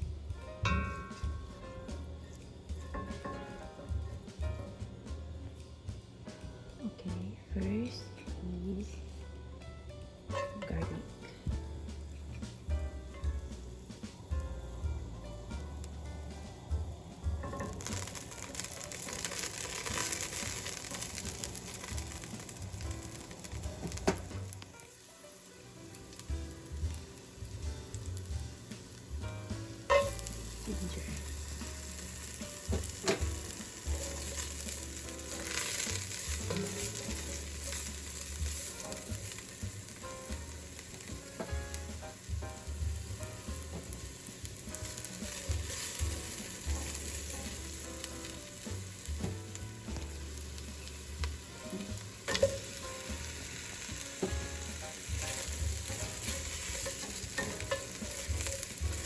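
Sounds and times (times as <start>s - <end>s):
garlic sizzling in a pan: 0.0s - 59.0s
utensil knocking against pan: 29.8s - 30.6s, 51.7s - 52.8s.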